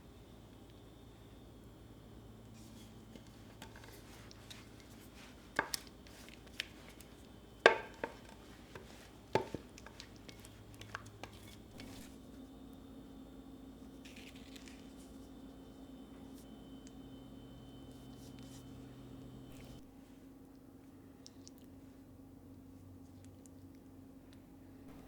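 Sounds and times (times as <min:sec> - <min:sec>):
faint steady hum: 0:00.0 - 0:25.0
kitchenware knocking and clinking: 0:07.7 - 0:08.8.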